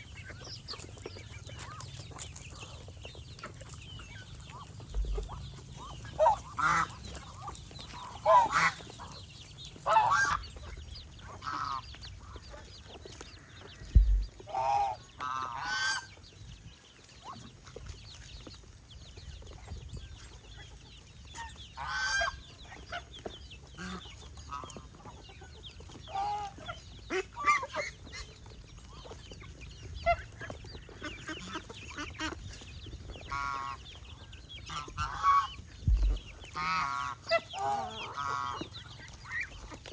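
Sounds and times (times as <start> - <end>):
chickens clucking: 0.0 - 39.9
geese honking: 4.0 - 12.5, 13.4 - 16.1, 21.8 - 23.1, 33.2 - 39.9
low thump: 4.9 - 5.4, 13.9 - 14.4, 35.8 - 36.3.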